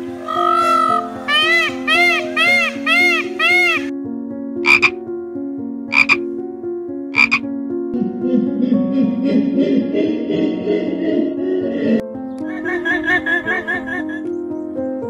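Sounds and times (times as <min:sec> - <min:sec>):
background music melody: 0:00.0 - 0:15.0
high arching call: 0:00.2 - 0:03.9, 0:04.7 - 0:05.0, 0:05.9 - 0:06.2, 0:07.2 - 0:07.4
frog croaks: 0:04.6 - 0:05.0, 0:05.9 - 0:06.2, 0:07.1 - 0:07.5.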